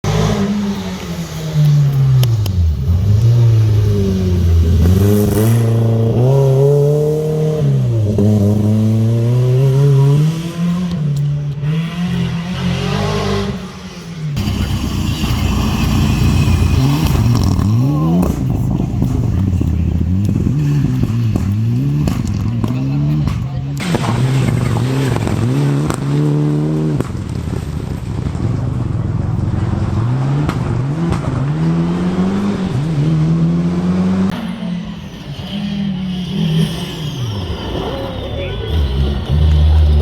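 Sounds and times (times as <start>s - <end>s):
rally car engines accelerating: 0.0s - 40.0s
rough uneven car engine: 0.0s - 40.0s.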